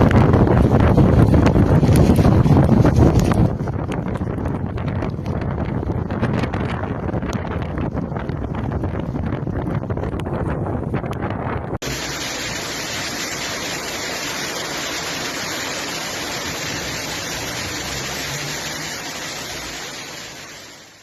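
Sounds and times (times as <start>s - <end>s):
rushing storm water or rain: 0.0s - 6.8s, 11.8s - 21.0s
wind buffeting microphone: 0.0s - 20.7s.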